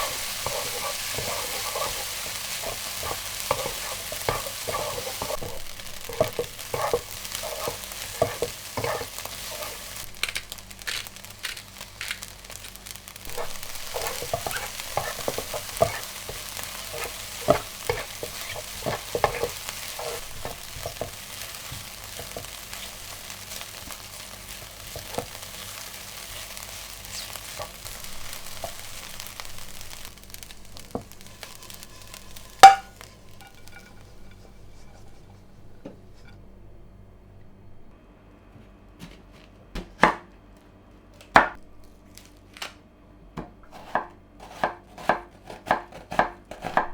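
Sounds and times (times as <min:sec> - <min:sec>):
food sizzling in a frying pan: 0:00.0 - 0:36.3
utensil clacking against pan: 0:13.3 - 0:22.5, 0:31.0 - 0:35.2
sharp knock on pan: 0:32.6 - 0:32.9.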